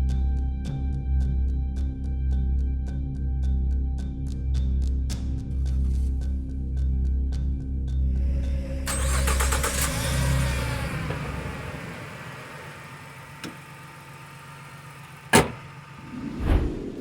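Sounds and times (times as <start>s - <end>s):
van engine cranking and starting: 8.3s - 16.1s.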